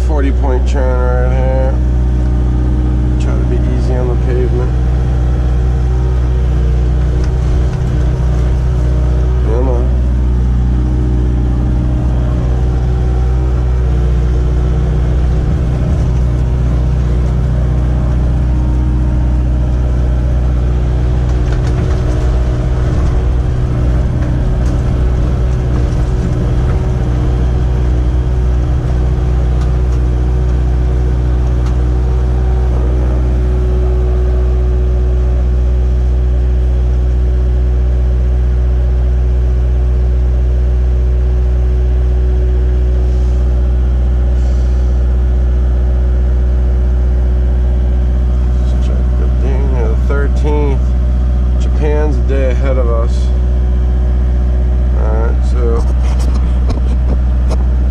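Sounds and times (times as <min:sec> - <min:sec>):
excavator diesel engine running: 0:00.0 - 0:57.9
clatter and rattling: 0:01.8 - 0:36.6, 0:47.8 - 0:57.9.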